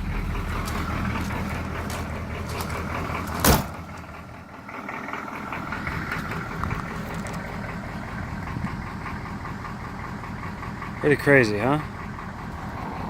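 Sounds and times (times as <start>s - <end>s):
diesel engine idling: 0.0s - 13.0s
loud thump: 3.3s - 3.8s.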